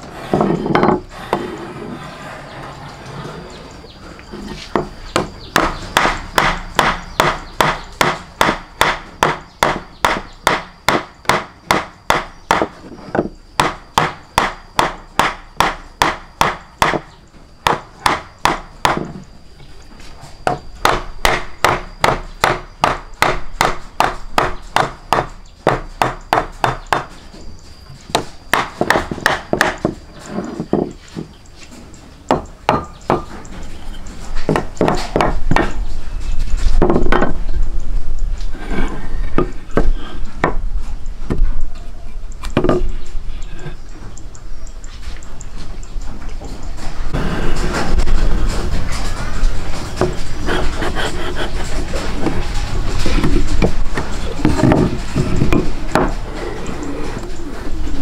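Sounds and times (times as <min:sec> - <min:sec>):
rapid knocking strikes: 0:04.8 - 0:12.7.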